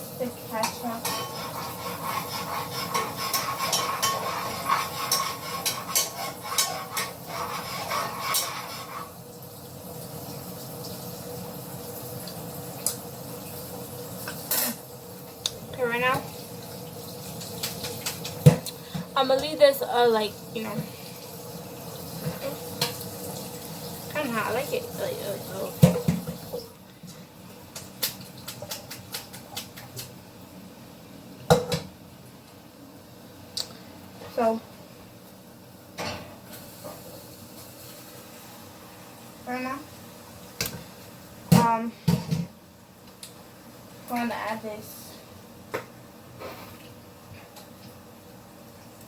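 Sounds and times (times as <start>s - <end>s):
whisk clinking against bowl: 0.6s - 9.0s.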